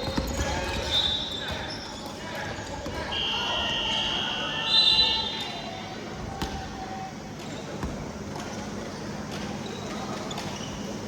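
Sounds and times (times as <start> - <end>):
basketball bouncing on gym floor: 0.0 - 1.7
large hall background noise: 0.0 - 11.0.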